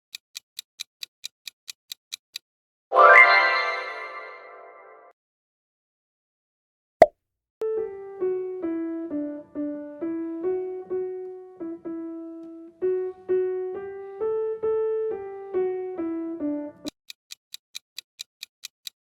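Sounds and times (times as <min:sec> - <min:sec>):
slow piano melody: 0:07.6 - 0:16.9.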